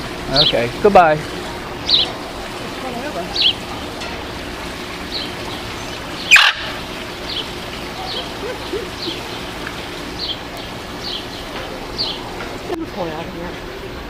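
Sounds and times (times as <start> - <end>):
high downward bird chirp: 5.1 - 12.3
loud bird screech: 6.3 - 6.8.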